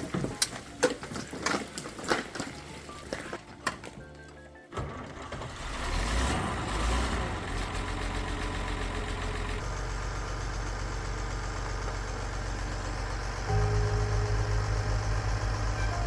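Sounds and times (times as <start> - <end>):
tractor diesel engine idling: 6.7 - 16.0.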